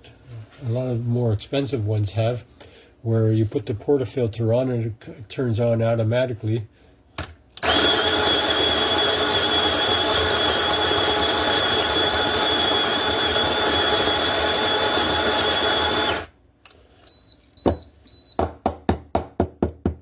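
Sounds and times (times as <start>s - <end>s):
coffee grinder whining: 7.6s - 16.4s.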